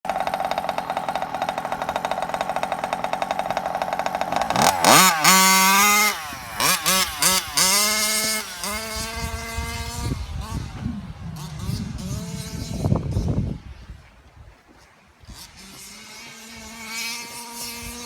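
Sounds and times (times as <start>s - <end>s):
model car engine idling and revving: 0.0s - 13.8s, 15.0s - 18.0s.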